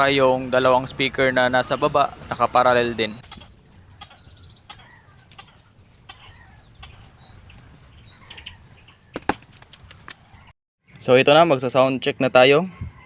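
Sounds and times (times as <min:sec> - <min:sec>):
low steady rumble: 0:00.0 - 0:04.1
chickens clucking: 0:00.0 - 0:09.2.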